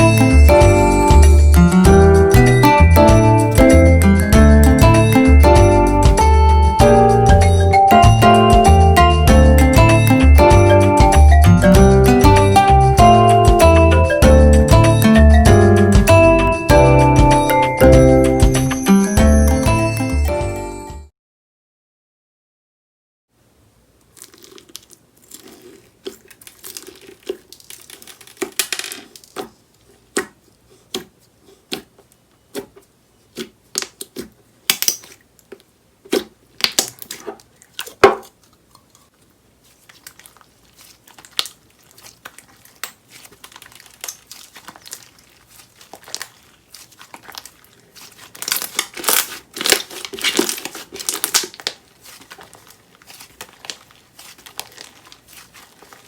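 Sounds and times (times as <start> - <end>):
slime popping and crackling: 24.0 - 31.1, 33.3 - 38.4, 39.7 - 56.0.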